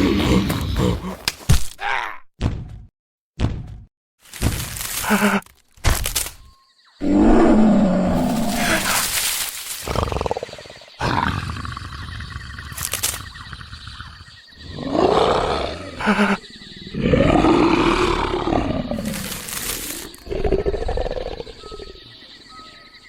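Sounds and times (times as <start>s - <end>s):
big cat roaring and growling: 0.0s - 1.3s, 7.0s - 9.1s, 9.8s - 12.8s, 13.4s - 22.0s.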